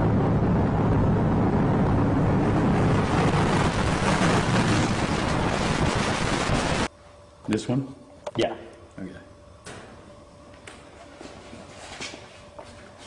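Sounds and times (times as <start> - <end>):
car engine and road noise: 0.0 - 6.0
wind buffeting microphone: 0.0 - 6.9.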